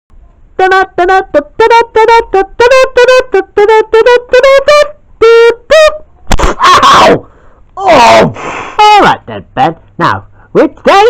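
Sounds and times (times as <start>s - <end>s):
brass-like tune of short notes: 0.6s - 5.9s.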